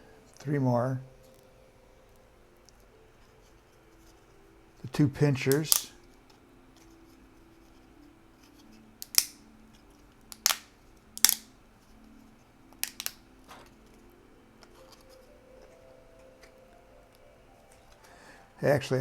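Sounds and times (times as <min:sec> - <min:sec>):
plastic clicks and snaps: 0:05.5 - 0:06.9, 0:08.5 - 0:11.5, 0:12.7 - 0:14.0.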